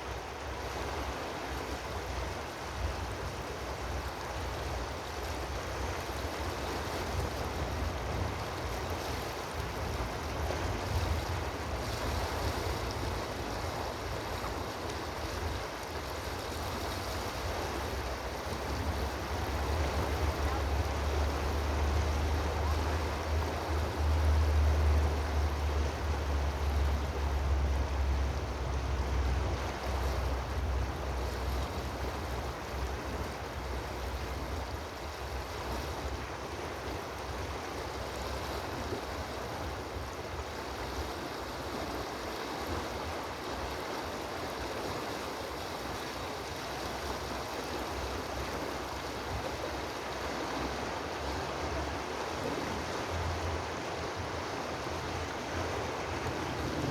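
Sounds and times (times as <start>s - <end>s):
water rushing: 0.0s - 56.9s
wind rumble on microphone: 47.8s - 56.9s.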